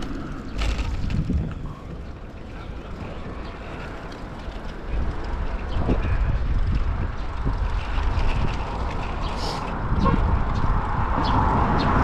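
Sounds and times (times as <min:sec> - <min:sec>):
road noise rumble: 0:00.0 - 0:12.0
wind buffeting microphone: 0:00.0 - 0:12.0.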